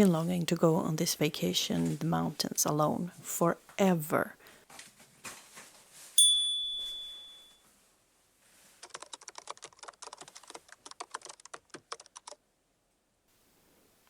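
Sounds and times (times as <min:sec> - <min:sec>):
high ding: 0:06.2 - 0:07.6.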